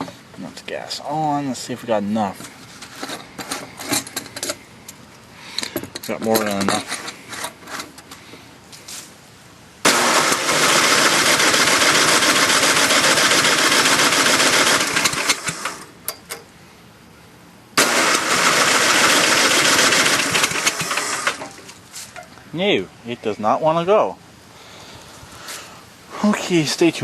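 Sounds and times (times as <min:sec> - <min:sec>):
electric starter cranking engine: 0:09.8 - 0:16.0, 0:17.8 - 0:21.8.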